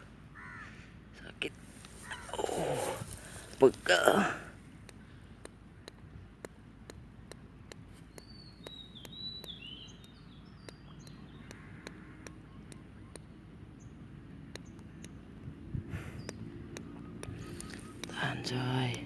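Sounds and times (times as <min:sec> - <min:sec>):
low background rumble: 0:00.0 - 0:19.0
even ticking clicks: 0:03.1 - 0:19.0
bird chirping: 0:07.8 - 0:15.4, 0:16.0 - 0:19.0.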